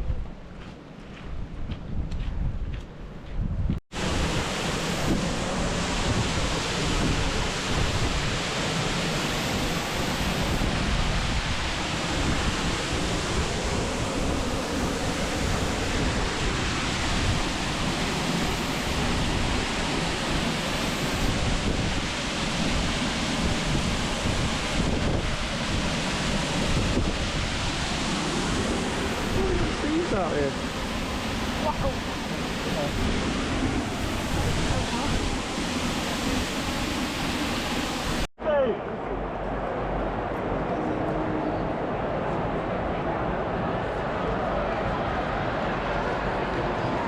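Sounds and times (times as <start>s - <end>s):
wind rushing: 3.5s - 38.3s
water rushing: 3.9s - 38.3s.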